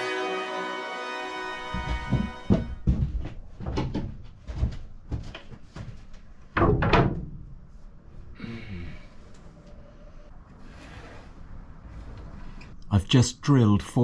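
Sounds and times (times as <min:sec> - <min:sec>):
heavy thuds: 0:01.6 - 0:06.0
knocks and clunks: 0:01.7 - 0:07.5.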